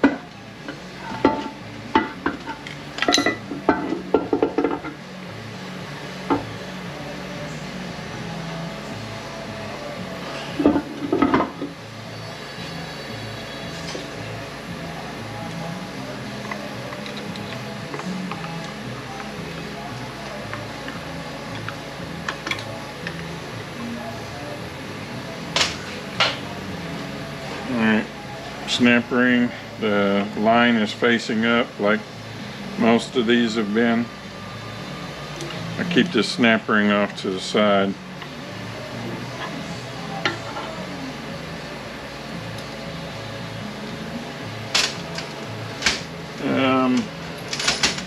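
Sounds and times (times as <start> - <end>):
low steady hum: 0.0 - 48.0
metal parts and tools clinking: 1.1 - 4.9, 16.4 - 19.6, 47.0 - 48.0
metal parts clinking: 47.0 - 48.0.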